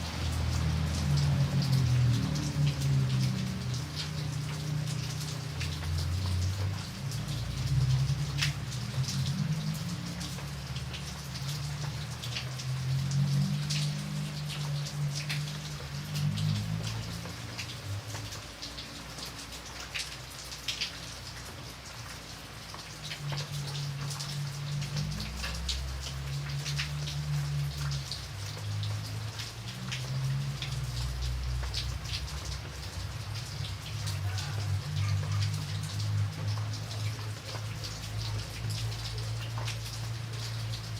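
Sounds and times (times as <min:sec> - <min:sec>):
raindrops tapping on a surface: 0:00.0 - 0:40.9.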